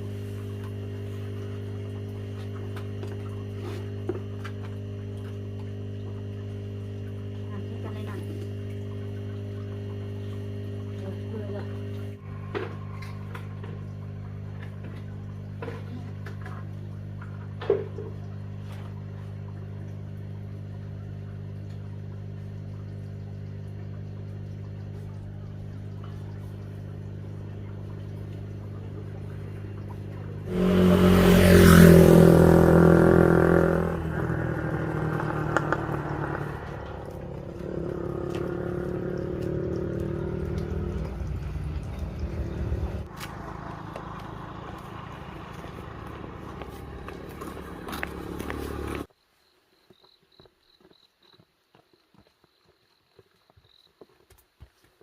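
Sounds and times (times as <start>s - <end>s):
vehicle engine idling and revving: 24.4s - 49.1s.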